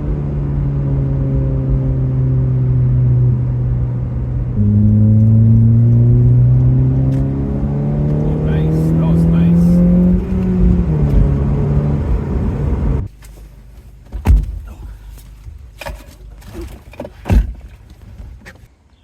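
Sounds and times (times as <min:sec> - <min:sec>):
car engine running: 0:00.0 - 0:13.6.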